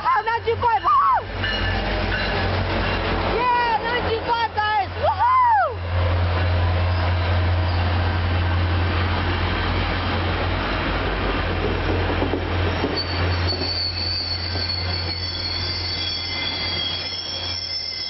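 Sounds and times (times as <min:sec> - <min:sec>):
train cars rolling rumble: 0:00.0 - 0:18.0
train wheel squeal: 0:06.8 - 0:08.1, 0:12.6 - 0:18.0.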